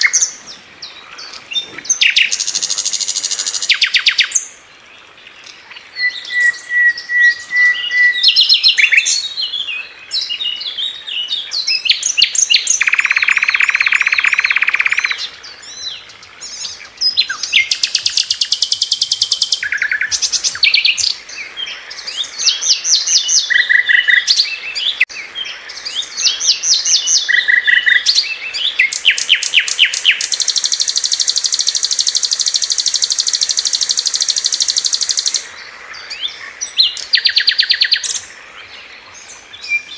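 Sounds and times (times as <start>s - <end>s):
flycatcher singing: 11.6s - 15.3s, 16.4s - 25.1s, 25.8s - 35.5s.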